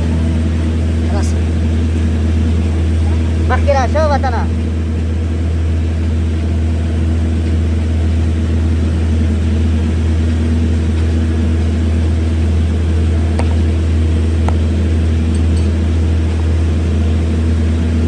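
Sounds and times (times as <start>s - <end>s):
machine low hum: 0.0s - 18.0s.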